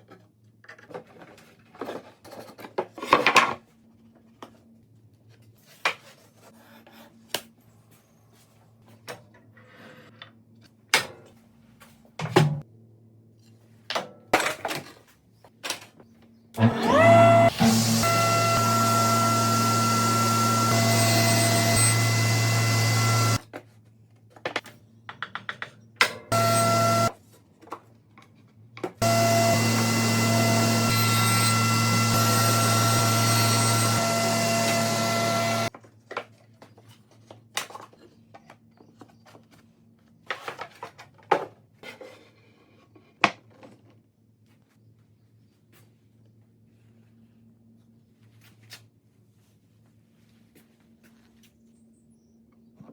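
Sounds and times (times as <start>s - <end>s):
power tool motor humming: 16.6s - 23.4s, 26.3s - 27.1s, 29.0s - 35.7s.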